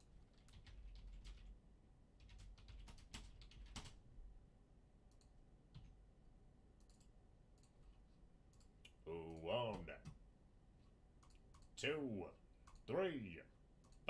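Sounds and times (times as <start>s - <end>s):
faint computer mouse clicks: 5.1s - 5.9s, 6.8s - 9.0s, 11.2s - 11.8s, 12.6s - 12.9s.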